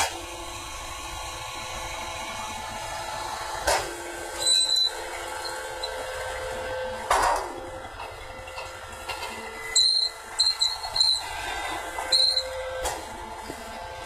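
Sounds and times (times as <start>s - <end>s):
baler machine running: 0.0s - 14.0s
high squeal with hiss: 4.2s - 7.0s, 9.5s - 12.9s.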